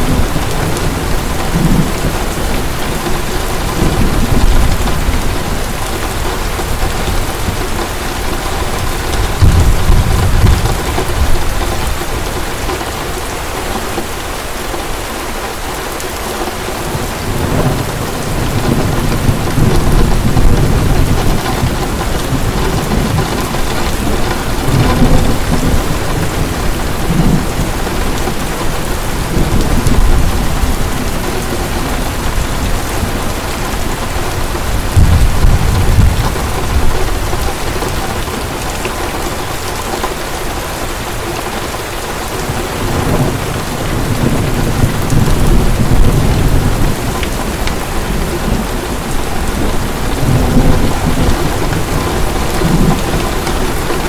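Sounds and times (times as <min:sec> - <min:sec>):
thunder rumbling: 0:00.0 - 0:14.3, 0:16.5 - 0:54.0
heavy rain: 0:00.0 - 0:54.0.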